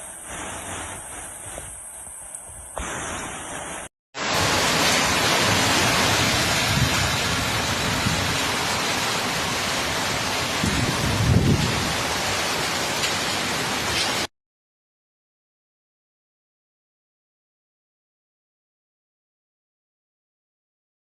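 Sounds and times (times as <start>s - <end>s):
heavy rain pouring: 0.0s - 14.3s.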